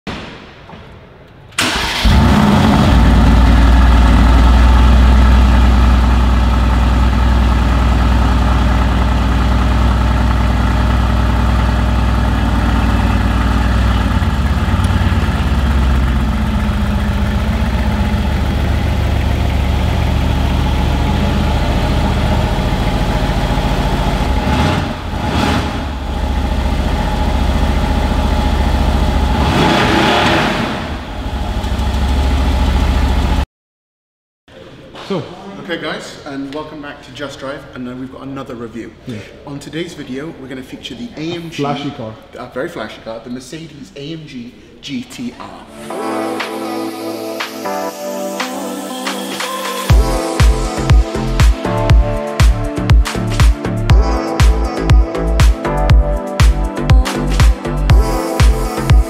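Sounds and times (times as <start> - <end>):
car engine starting and idling: 1.5 - 33.4.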